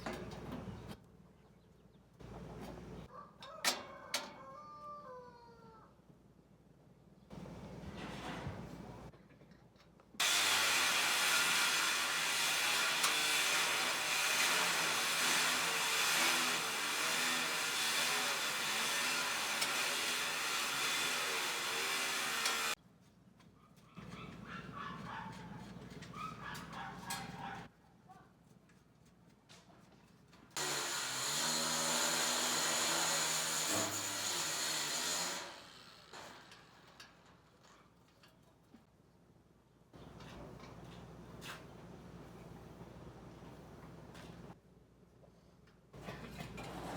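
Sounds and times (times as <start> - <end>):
power tool running: 10.2 - 22.8, 30.6 - 37.1.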